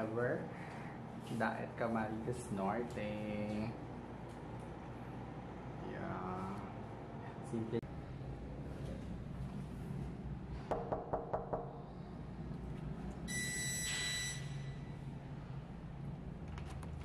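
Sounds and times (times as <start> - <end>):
high electronic beep: 13.3 - 14.9.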